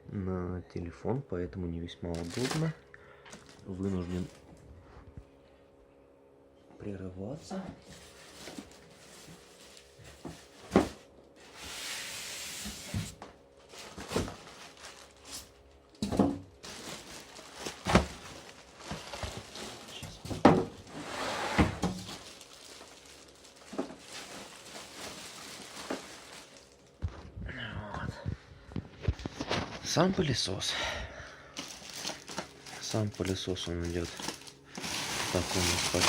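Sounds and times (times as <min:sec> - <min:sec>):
plastic bag rustling: 0:02.1 - 0:04.6, 0:07.8 - 0:27.2, 0:31.5 - 0:36.0
cardboard box knocks and thumps: 0:17.8 - 0:18.2.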